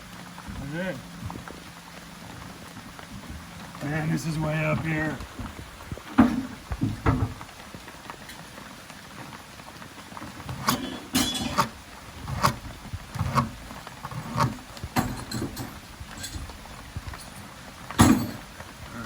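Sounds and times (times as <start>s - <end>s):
rain patter: 0.0s - 19.0s
irregular knocks and taps: 4.8s - 7.6s.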